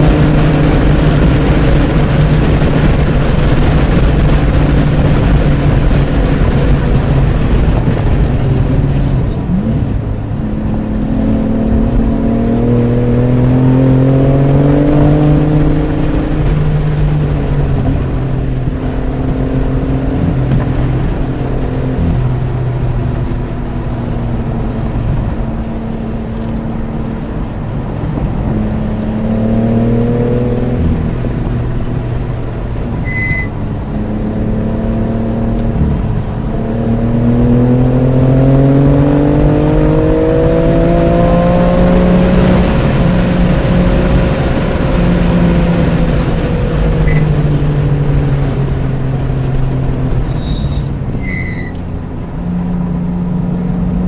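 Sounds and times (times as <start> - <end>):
car engine accelerating: 0.0 - 54.0
short high-pitched tone: 33.0 - 33.5.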